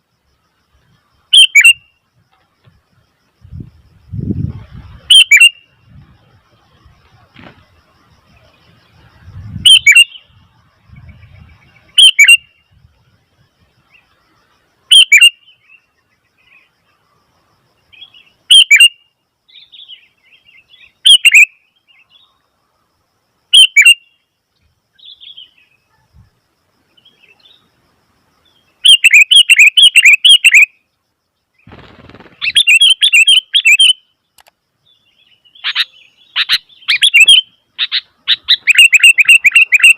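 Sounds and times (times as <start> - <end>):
bird calling shrill notes: 1.3 - 2.0, 5.1 - 5.8, 9.6 - 10.4, 11.2 - 12.7, 14.9 - 16.0, 18.5 - 20.0, 20.9 - 21.6, 23.5 - 24.2, 28.8 - 30.8, 32.4 - 34.1, 35.4 - 39.9.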